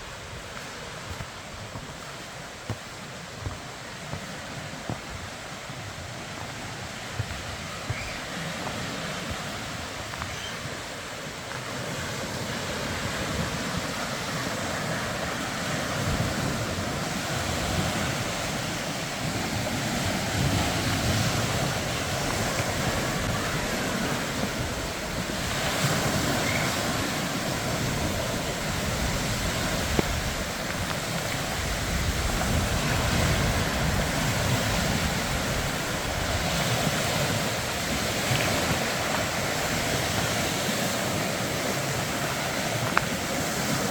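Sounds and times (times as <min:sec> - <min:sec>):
wind buffeting microphone: 0:11.8 - 0:43.9.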